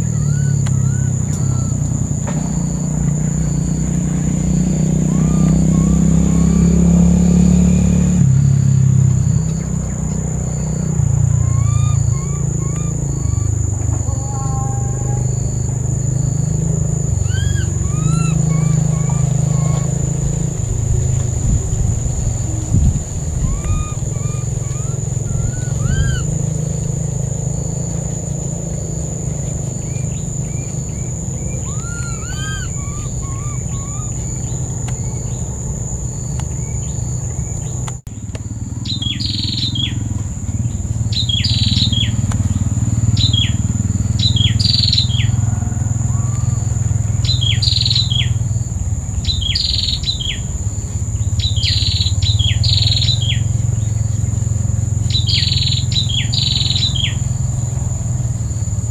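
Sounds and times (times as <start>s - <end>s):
bird whistles: 0.0s - 2.8s, 4.9s - 7.0s, 10.6s - 15.3s, 17.2s - 20.3s, 23.2s - 26.8s, 29.8s - 35.4s, 55.1s - 57.3s
downward-sweeping bird chirps: 0.0s - 8.1s, 9.4s - 37.8s, 38.8s - 40.0s, 41.1s - 48.5s, 49.1s - 50.5s, 51.2s - 54.4s, 55.0s - 57.9s
high-pitched whine: 0.0s - 37.7s
low rumble: 8.6s - 38.0s.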